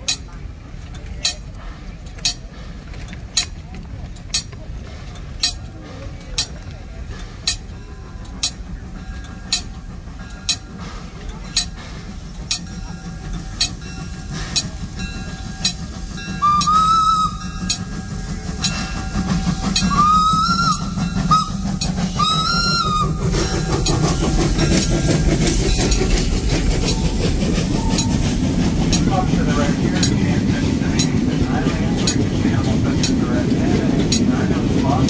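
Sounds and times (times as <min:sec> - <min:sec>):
train running noise: 0:00.0 - 0:35.0
steam locomotive whistle blasts: 0:16.3 - 0:17.8, 0:18.6 - 0:23.6.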